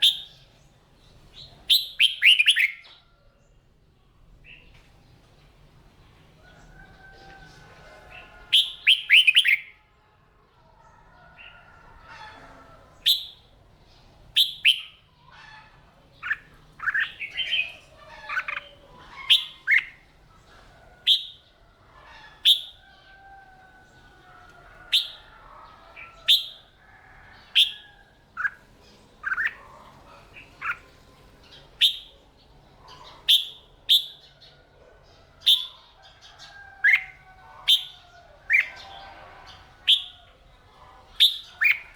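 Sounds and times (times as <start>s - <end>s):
bulbuls singing sharp chirps: 0.0s - 3.0s, 7.5s - 9.7s, 13.0s - 34.5s, 35.3s - 41.9s.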